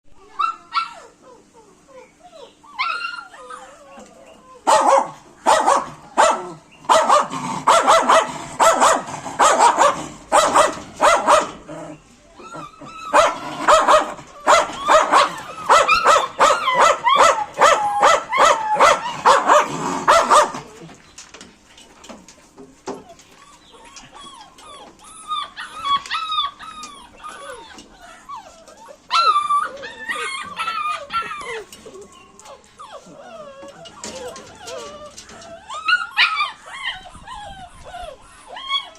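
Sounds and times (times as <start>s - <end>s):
dogs whining and yipping: 0.1s - 21.1s, 22.8s - 38.9s
dogs barking rapidly: 4.6s - 11.8s, 12.9s - 20.8s.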